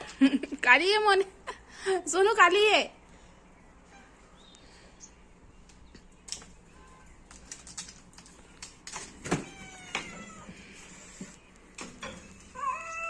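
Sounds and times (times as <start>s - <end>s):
cat meowing: 9.4s - 10.6s, 12.6s - 13.0s
cats caterwauling: 9.4s - 11.3s, 12.4s - 13.0s.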